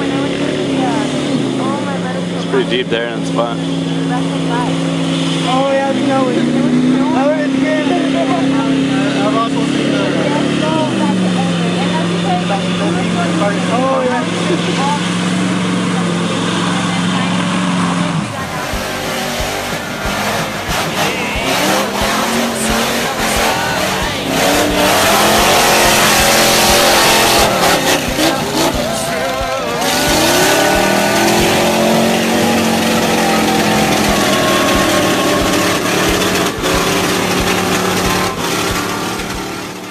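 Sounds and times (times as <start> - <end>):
engines revving hard: 0.0 - 39.9
tyres spinning in dirt: 14.8 - 39.9.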